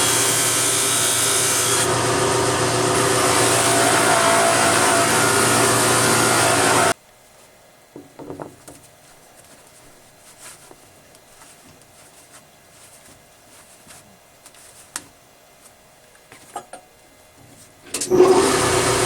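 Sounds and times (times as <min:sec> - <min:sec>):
power tool motor: 0:00.0 - 0:07.0, 0:18.1 - 0:19.0.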